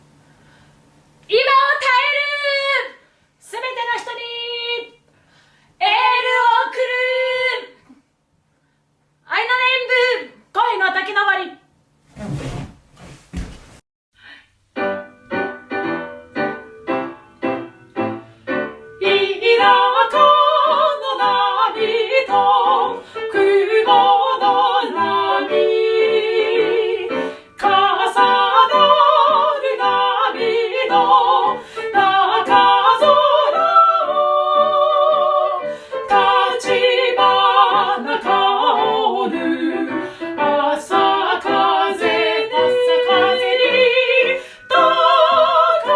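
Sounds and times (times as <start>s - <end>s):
woman singing operatically: 1.3s - 5.0s, 5.8s - 7.8s, 9.3s - 11.5s, 19.0s - 45.9s.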